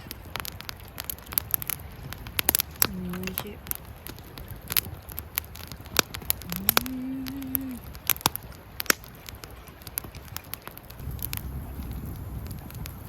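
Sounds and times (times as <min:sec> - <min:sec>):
campfire crackling and popping: 0:00.0 - 0:13.0
person humming: 0:06.4 - 0:07.8.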